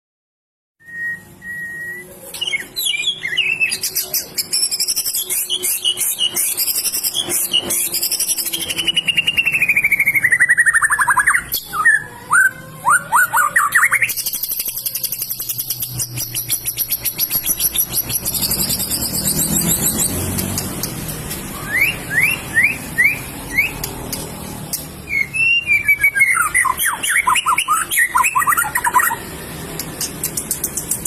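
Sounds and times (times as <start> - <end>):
songbird singing varied song: 1.0 - 24.0.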